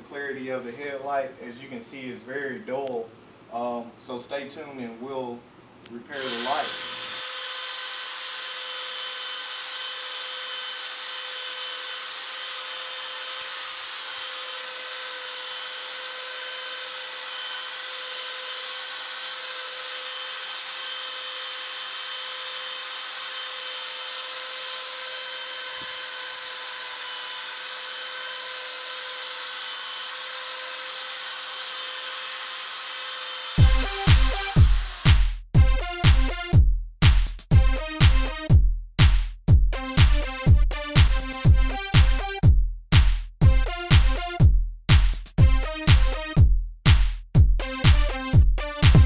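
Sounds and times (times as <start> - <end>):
electric drill whining: 6.2 - 35.2.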